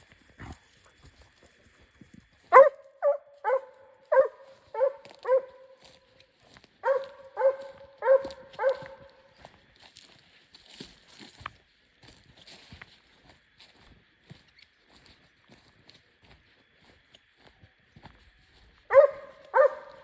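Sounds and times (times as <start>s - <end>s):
hound baying: 2.5s - 6.1s, 6.8s - 9.4s, 18.9s - 20.0s.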